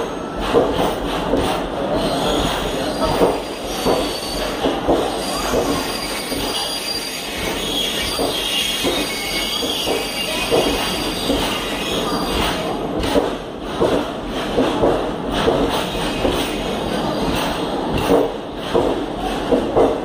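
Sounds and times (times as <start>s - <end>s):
train wheels knocking over rail joints: 0.0s - 6.8s, 7.4s - 20.0s
high wheel and brake squeal: 2.0s - 12.6s.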